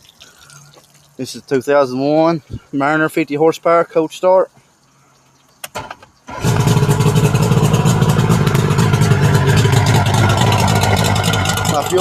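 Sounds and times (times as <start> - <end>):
outboard motor idling: 6.3 - 12.0.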